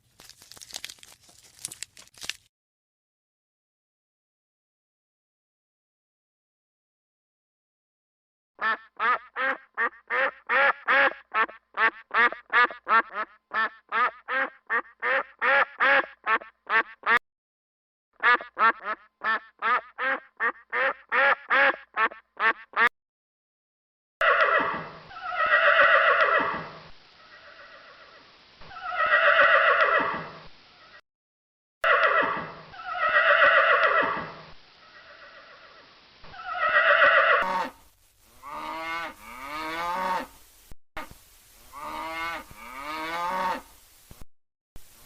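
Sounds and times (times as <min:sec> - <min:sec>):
duck quacking: 0:08.6 - 0:17.2, 0:18.2 - 0:22.9
horse neighing: 0:24.2 - 0:26.7, 0:27.4 - 0:30.4, 0:31.8 - 0:34.4, 0:35.0 - 0:37.8.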